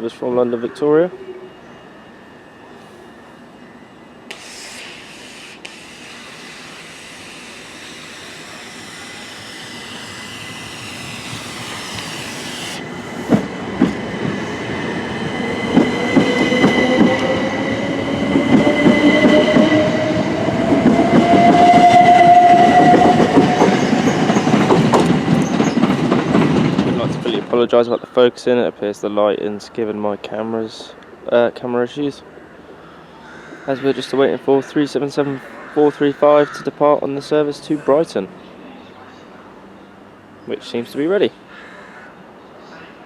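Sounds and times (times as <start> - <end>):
electric train motor whine: 1.2 - 26.1.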